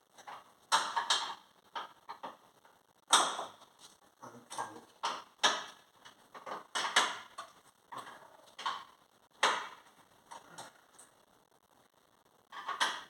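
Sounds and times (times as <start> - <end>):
tools and car parts knocking: 0.2 - 2.4, 3.1 - 3.6, 5.0 - 7.6, 12.5 - 13.0.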